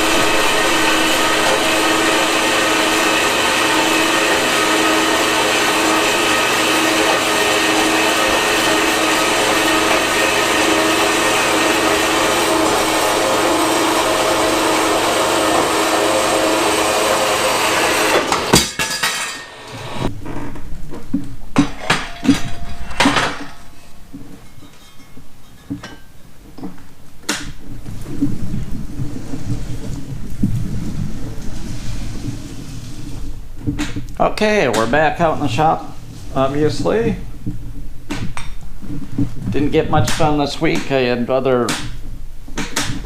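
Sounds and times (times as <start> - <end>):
low rumbling: 0.0 - 18.2, 27.6 - 39.9
power tool motor whining: 0.0 - 18.6
steel parts clanking: 21.6 - 26.7.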